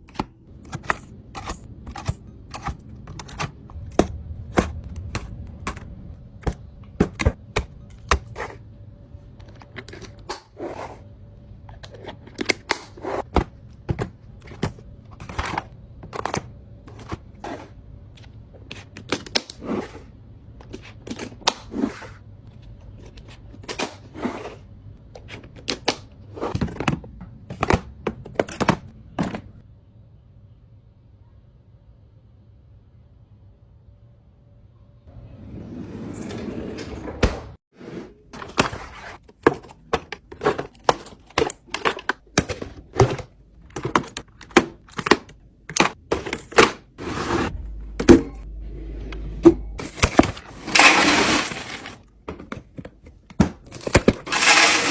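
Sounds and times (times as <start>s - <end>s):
food containers clicking and knocking: 0.0s - 8.5s, 25.1s - 29.6s, 38.4s - 47.0s, 49.4s - 54.9s
packages rustling: 49.8s - 54.9s.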